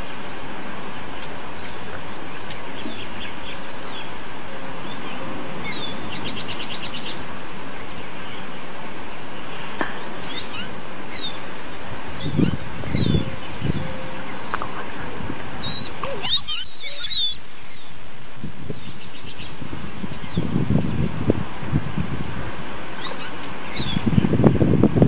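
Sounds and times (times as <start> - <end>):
background hiss: 0.0 - 25.0
small birds chirping: 1.0 - 4.2, 4.8 - 18.0, 18.7 - 21.1, 23.0 - 24.5
bird trill: 1.5 - 4.2, 4.8 - 7.2, 7.9 - 14.6, 15.6 - 18.0, 23.0 - 24.3.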